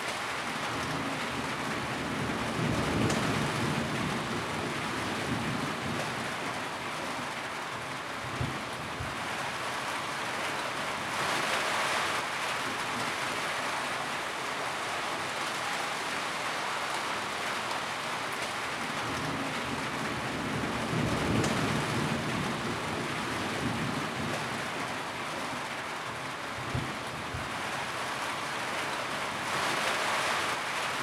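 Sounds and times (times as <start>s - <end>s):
rain on a tin roof: 0.0s - 31.0s.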